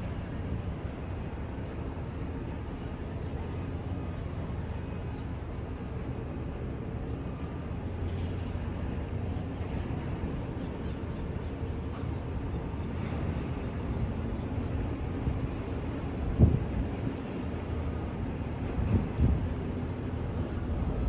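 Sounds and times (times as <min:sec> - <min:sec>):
ship low rumble: 0:00.0 - 0:21.0.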